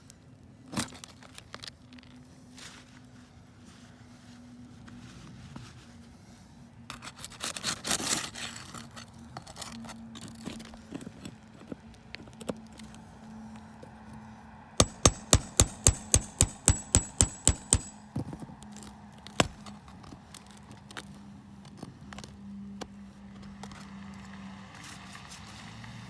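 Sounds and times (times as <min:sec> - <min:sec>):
hammer driving nails: 0:14.8 - 0:18.0.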